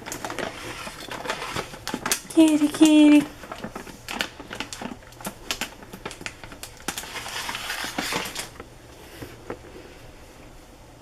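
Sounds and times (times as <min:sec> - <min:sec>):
cat chewing dry food: 0:00.0 - 0:07.9.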